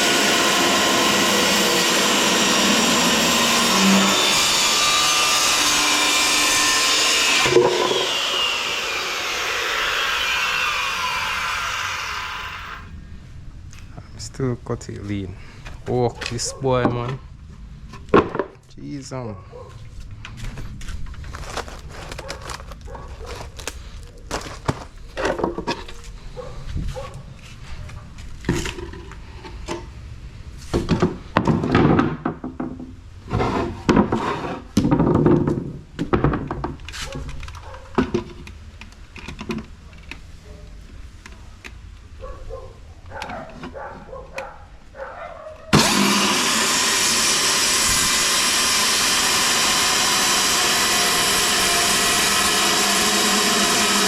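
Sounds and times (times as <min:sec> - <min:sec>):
power saw cutting plywood: 0:00.0 - 0:13.0, 0:21.3 - 0:25.9, 0:45.7 - 0:54.0
plywood boards knocking and thumping: 0:18.1 - 0:18.6, 0:30.7 - 0:36.8.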